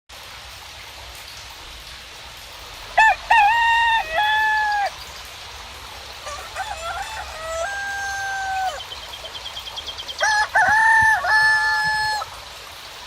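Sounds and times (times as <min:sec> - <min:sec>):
rain hiss: 0:00.1 - 0:13.0
rooster crowing: 0:03.0 - 0:05.0, 0:06.2 - 0:08.8, 0:10.2 - 0:12.3.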